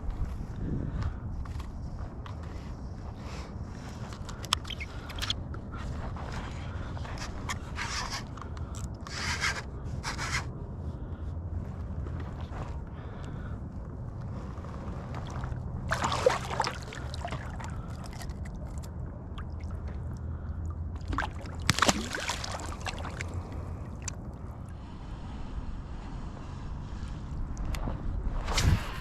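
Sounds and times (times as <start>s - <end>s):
wind rumbling on microphone: 0.0s - 29.0s
water lapping: 14.4s - 25.4s
water splashes: 15.1s - 24.4s.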